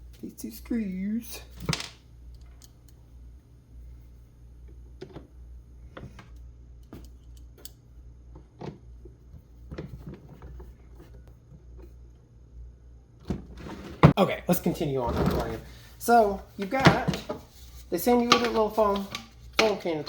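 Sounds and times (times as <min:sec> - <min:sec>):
low steady hum: 0:00.0 - 0:20.0
plastic parts clicking and knocking: 0:18.2 - 0:19.9.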